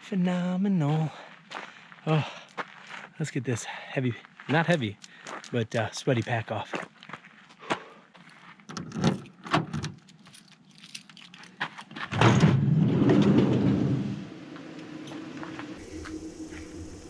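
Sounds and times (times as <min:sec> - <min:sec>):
gear and keys rattling: 0:08.8 - 0:12.1.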